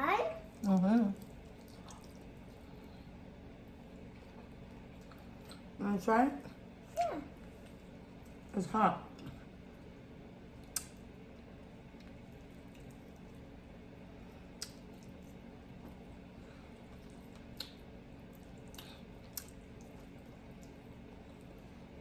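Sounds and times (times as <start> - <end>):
steady low hum: 0.0 - 22.0
wet mouth clicks and smacks: 10.6 - 11.0, 14.6 - 15.2, 17.3 - 17.8, 18.4 - 20.0.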